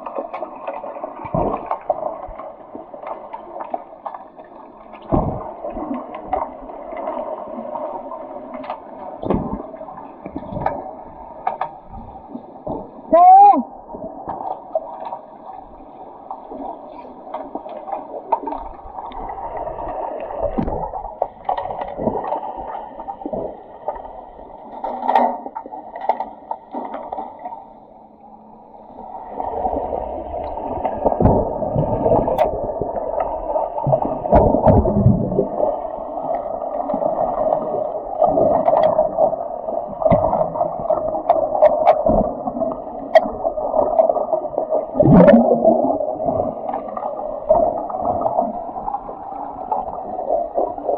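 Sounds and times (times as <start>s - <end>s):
muffled underwater water rushing: 0.0s - 50.9s.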